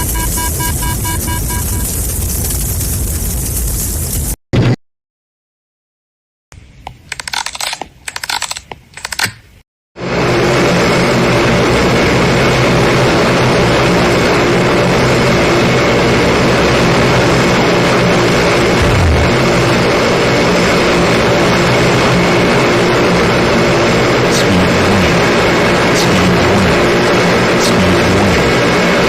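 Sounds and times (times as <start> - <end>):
airplane engine drone: 0.0 - 3.9, 10.0 - 29.0.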